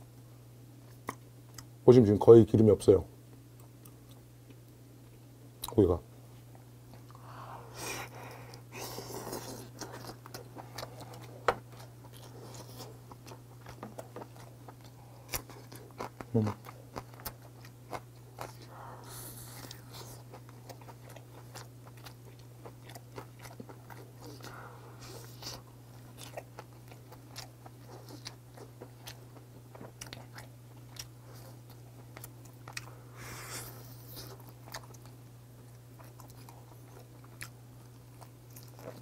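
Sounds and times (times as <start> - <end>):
steady low hum: 0.0 - 39.0
close-up chewing: 8.1 - 39.0.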